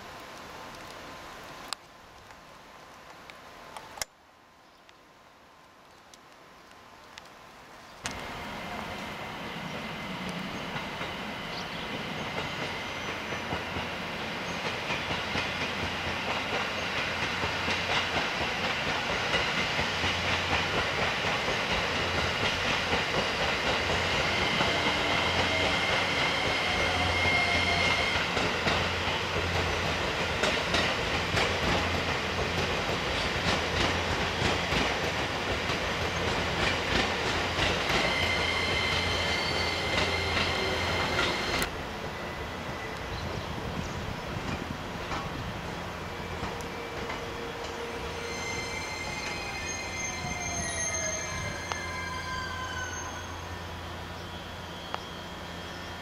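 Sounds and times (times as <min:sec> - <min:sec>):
train wheels clicking over rail joints: 0:09.7 - 0:41.8, 0:44.4 - 0:45.5.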